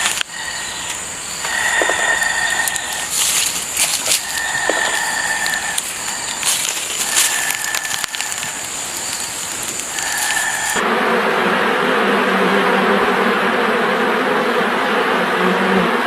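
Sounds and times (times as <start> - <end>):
bee swarm buzzing: 0.0 - 16.0
crackling and clicks: 0.9 - 10.8.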